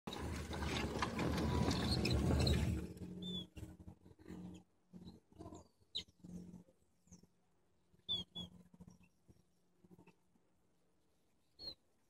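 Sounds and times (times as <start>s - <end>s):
loud rough noise: 0.1s - 3.0s
small birds chirping: 8.0s - 10.2s, 11.4s - 11.9s.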